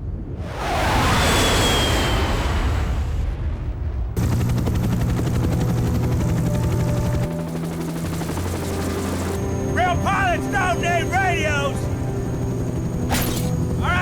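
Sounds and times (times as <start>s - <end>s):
helicopter rotor chop: 4.2s - 14.0s.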